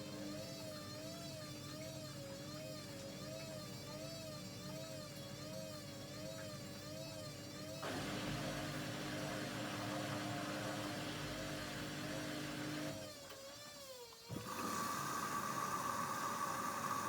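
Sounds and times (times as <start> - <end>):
washing machine motor humming: 5.2 - 13.3, 14.3 - 17.0.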